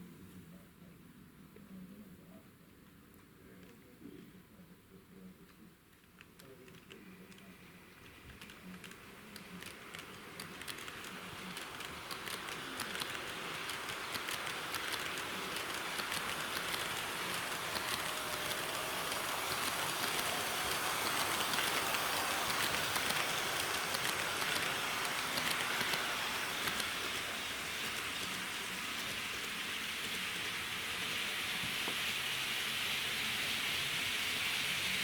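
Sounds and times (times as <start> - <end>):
model train rattling hiss: 6.7 - 35.0
rail-joint clicks: 11.6 - 27.2.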